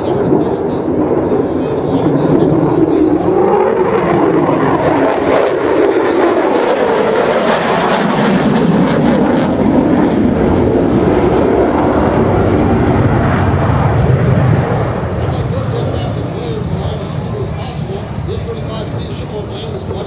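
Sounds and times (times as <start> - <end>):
jet engine roaring: 0.0 - 20.0.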